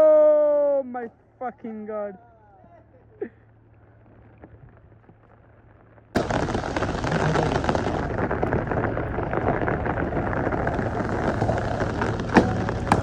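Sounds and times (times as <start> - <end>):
heavy rain: 6.2 - 13.0.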